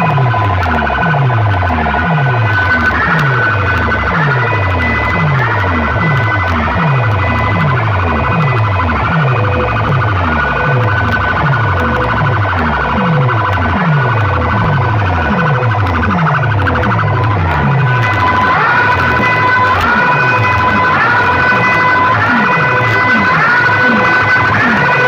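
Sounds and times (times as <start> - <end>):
falling bass sweep: 0.0 - 25.0
high siren-like tones: 0.0 - 25.0.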